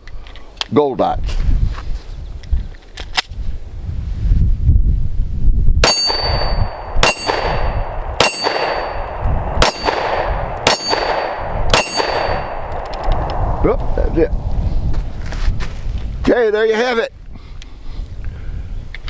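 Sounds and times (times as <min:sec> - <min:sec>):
steel target clanging: 0:05.8 - 0:12.7
pistol shots: 0:05.8 - 0:13.0.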